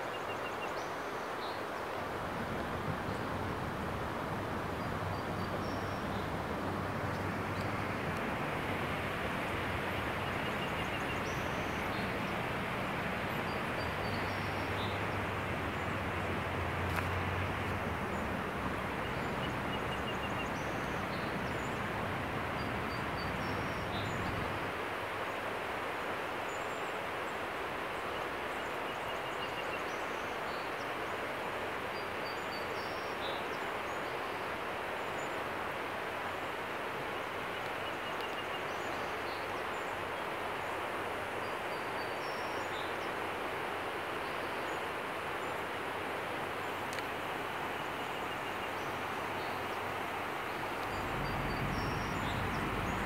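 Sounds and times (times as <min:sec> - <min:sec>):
steady rushing noise: 0:50.2 - 0:53.0.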